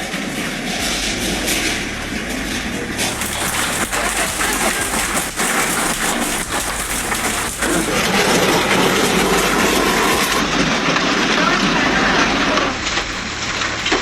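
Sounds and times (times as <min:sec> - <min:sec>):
hail and heavy rain pelting: 0:03.0 - 0:14.0.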